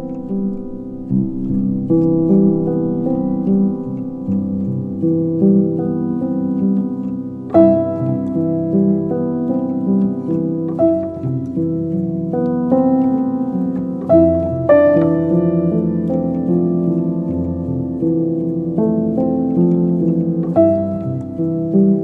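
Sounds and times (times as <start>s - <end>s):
piano-like melody over chords: 0.0s - 22.0s.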